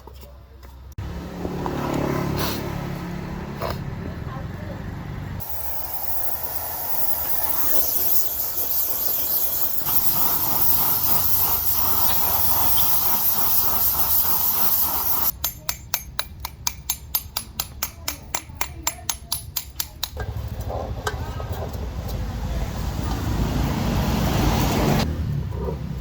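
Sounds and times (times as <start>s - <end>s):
steady air jet hiss: 5.4s - 15.3s.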